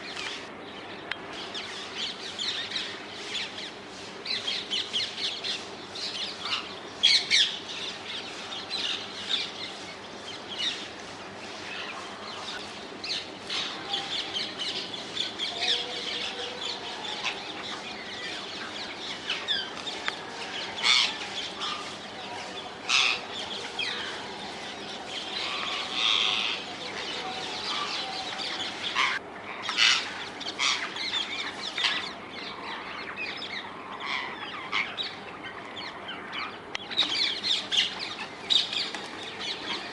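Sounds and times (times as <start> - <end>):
parakeets screeching: 20.4 - 22.0, 22.9 - 35.2.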